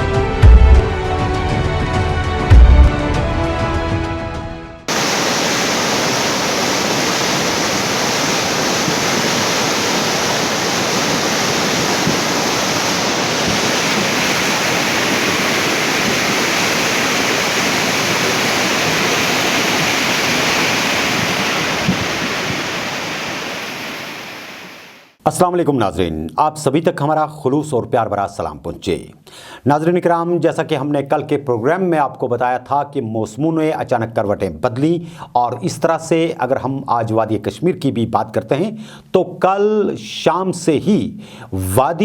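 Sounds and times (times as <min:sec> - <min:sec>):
intro music: 0:00.0 - 0:04.8
loud rushing water: 0:04.9 - 0:25.2.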